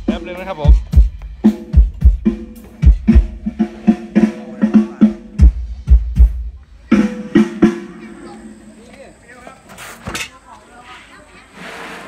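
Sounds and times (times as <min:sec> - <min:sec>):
drum kit playing a groove: 0:00.0 - 0:08.6.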